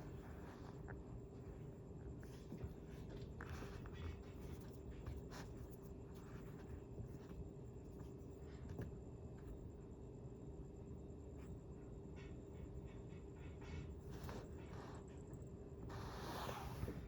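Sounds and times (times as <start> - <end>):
faint scratching and rustling: 0.0 - 9.6, 14.0 - 17.0
faint steady hum: 0.0 - 17.0.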